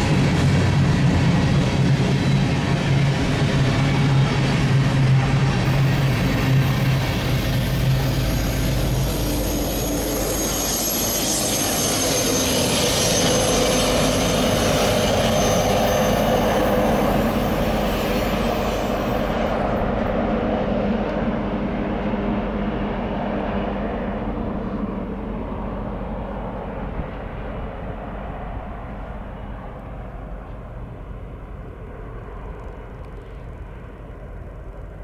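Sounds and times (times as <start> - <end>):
high whine: 0.0 - 22.9
wheel-on-rail noise: 0.0 - 27.5
diesel locomotives running: 0.0 - 35.0.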